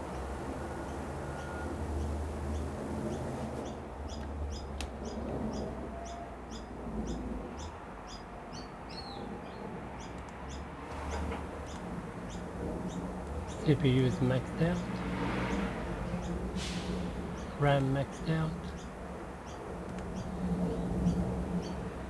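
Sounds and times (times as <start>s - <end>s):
bird chirping: 11.6s - 16.5s, 17.2s - 21.9s.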